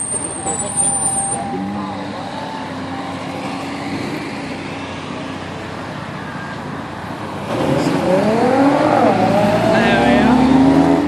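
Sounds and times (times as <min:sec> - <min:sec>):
traffic of cars rolling by: 0:00.0 - 0:11.0
car engine revving past: 0:07.4 - 0:11.0.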